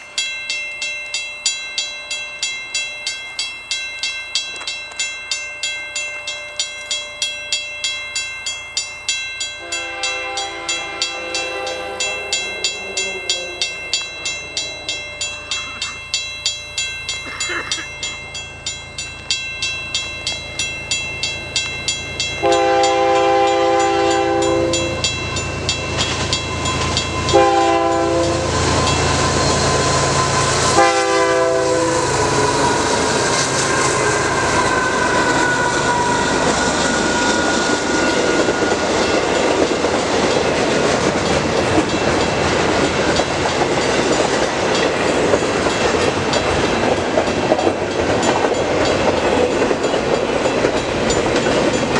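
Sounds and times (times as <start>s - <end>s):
crossing bell ringing: 0.0s - 51.9s
train cars rolling past: 0.0s - 51.9s
locomotive horn blasts: 9.6s - 13.9s, 22.4s - 25.0s, 27.3s - 33.1s.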